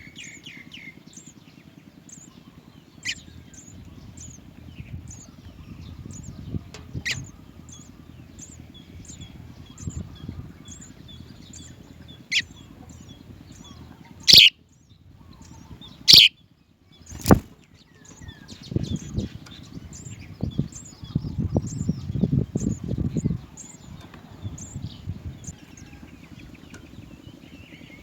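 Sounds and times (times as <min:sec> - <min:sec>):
sparrows chirping: 0:00.0 - 0:28.0
loud wing flaps: 0:17.1 - 0:17.5.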